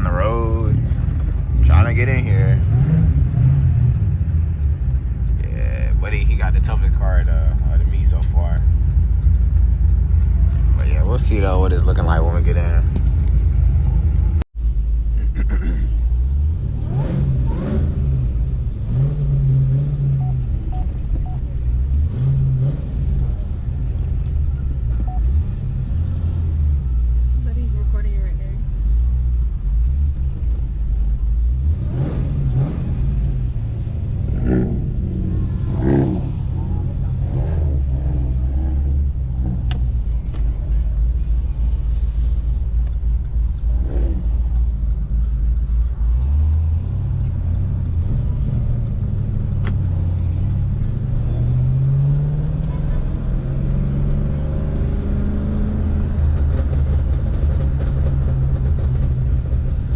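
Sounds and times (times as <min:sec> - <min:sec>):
car engine rumbling: 0:00.0 - 0:59.9.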